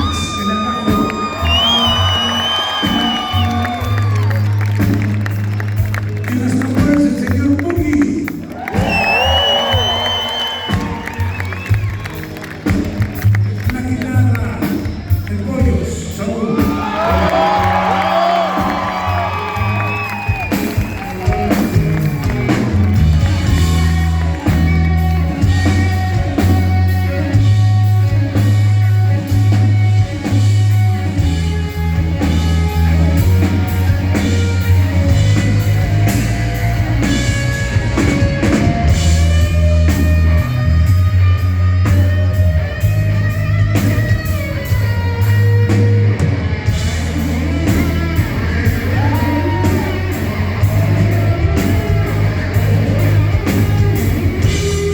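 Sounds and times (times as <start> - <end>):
bass guitar: 0.0 - 54.9
drum kit: 0.0 - 54.9.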